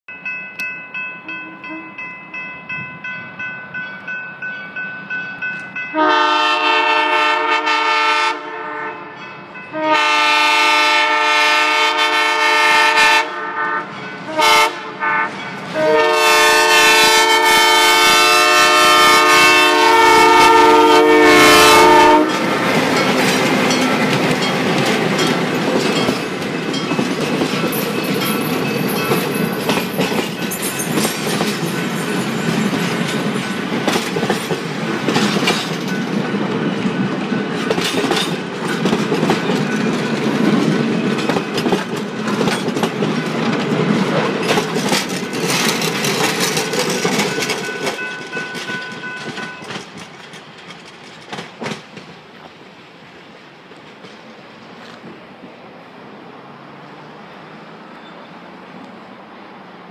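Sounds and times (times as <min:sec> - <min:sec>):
train rumbling past: 0:00.1 - 0:59.9
locomotive air horn: 0:01.2 - 0:02.0, 0:05.9 - 0:22.6
wheels clicking over rail joints: 0:22.2 - 0:52.6.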